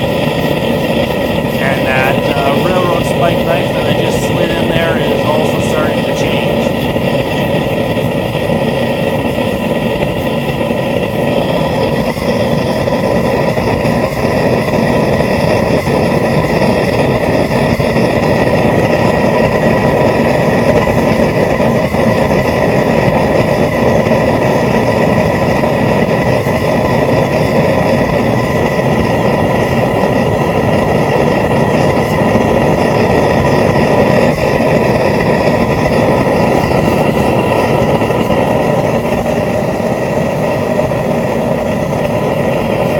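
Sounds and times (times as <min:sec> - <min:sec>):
forge burner rushing: 0:00.0 - 0:42.9.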